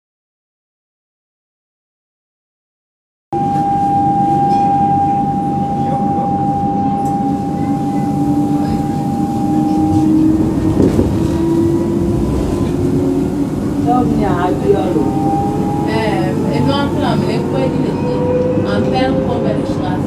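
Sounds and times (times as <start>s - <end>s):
tram rumbling on rails: 3.4s - 20.0s
low whine rising in pitch: 9.1s - 17.1s.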